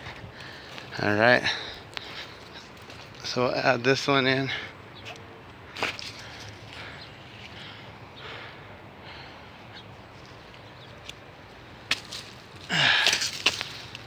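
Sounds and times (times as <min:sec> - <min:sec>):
dry branches rustling: 0:00.0 - 0:14.0
branch snapping: 0:11.8 - 0:14.0.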